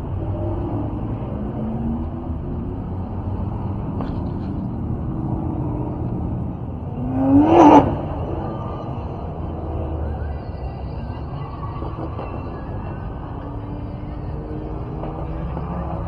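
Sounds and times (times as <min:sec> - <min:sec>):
engine revving: 0:00.0 - 0:10.4
car engines running: 0:00.0 - 0:16.0.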